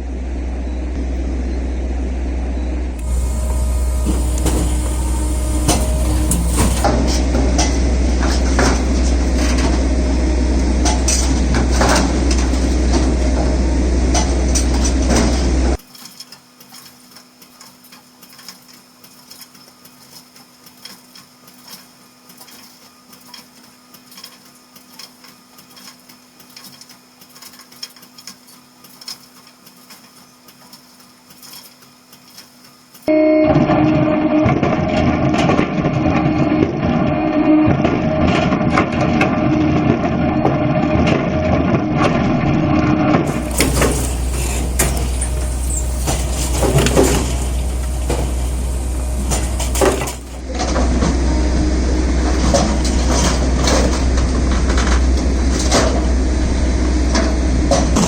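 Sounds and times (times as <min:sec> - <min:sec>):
firewood processor motor hum: 0:00.0 - 0:15.8, 0:43.2 - 0:58.0.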